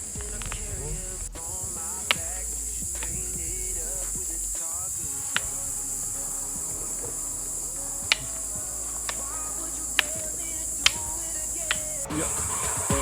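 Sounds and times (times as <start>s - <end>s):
faint voices: 0.0s - 13.0s.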